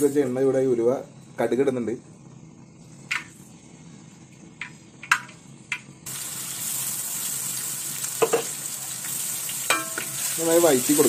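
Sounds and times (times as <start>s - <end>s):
seeds popping in hot oil: 4.6s - 11.0s
paste sizzling in oil: 6.1s - 11.0s.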